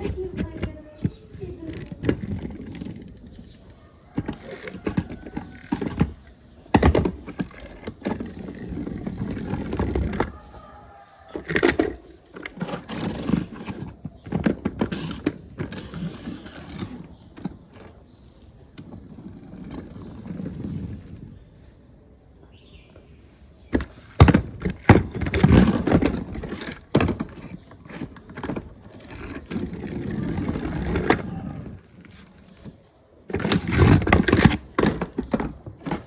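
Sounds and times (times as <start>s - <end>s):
toy motorcycles clicking and rattling: 23.8s - 32.7s.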